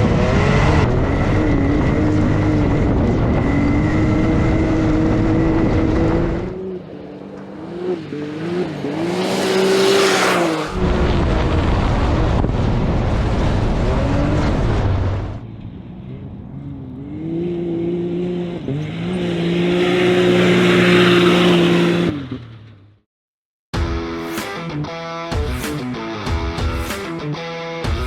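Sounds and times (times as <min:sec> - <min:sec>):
car engine revving hard: 0:00.0 - 0:11.2, 0:17.0 - 0:22.3.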